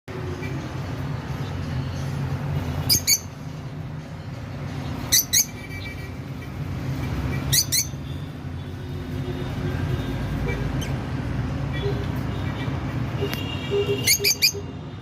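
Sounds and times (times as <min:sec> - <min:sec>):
small bird chirping: 0:02.8 - 0:03.4.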